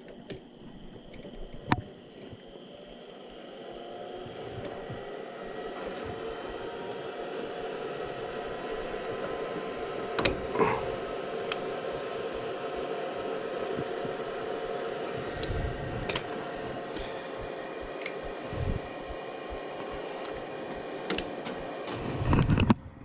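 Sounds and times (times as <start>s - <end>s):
furnace motor humming: 0.0s - 22.7s
sharp clicks and knocks: 10.2s - 10.6s.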